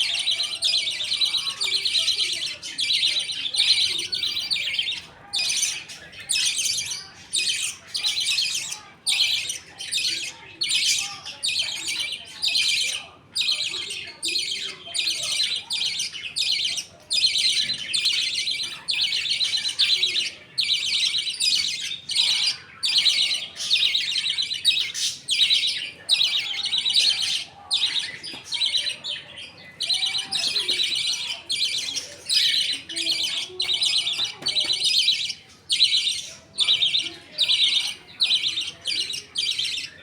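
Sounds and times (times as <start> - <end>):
budgerigars chattering: 0.0 - 40.0.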